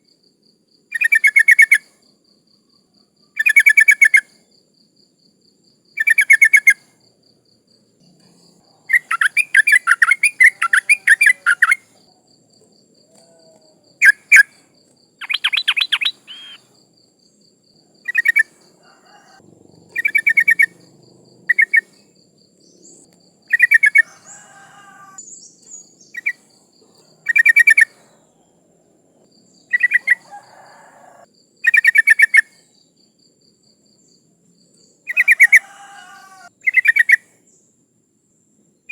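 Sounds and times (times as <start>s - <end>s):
bird rapid chattering calls: 8.9s - 11.8s, 15.2s - 16.7s, 18.1s - 22.0s, 23.5s - 25.2s.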